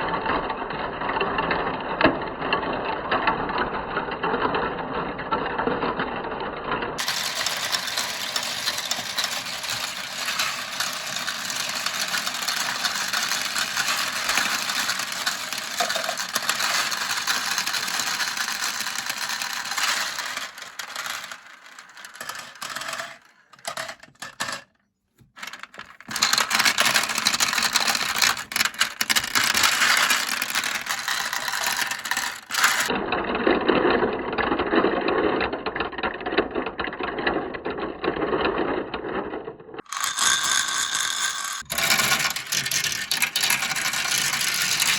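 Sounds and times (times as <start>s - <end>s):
marbles rattling down a marble run: 7.0s - 24.7s, 25.4s - 33.0s, 35.8s - 44.9s.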